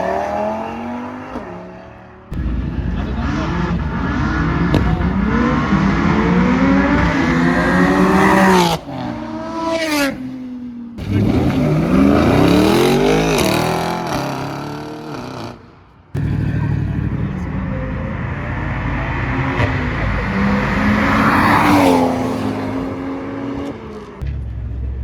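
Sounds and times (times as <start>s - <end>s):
car engines revving: 0.0s - 25.0s
car accelerating past: 2.6s - 10.4s, 16.2s - 24.2s.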